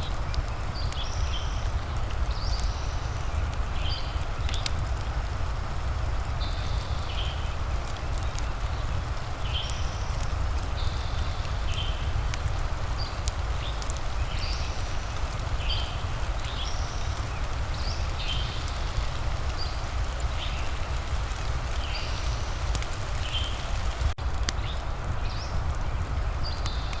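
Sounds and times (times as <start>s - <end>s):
fire crackling clicks: 0.0s - 27.0s
rain rushing hiss: 0.0s - 27.0s.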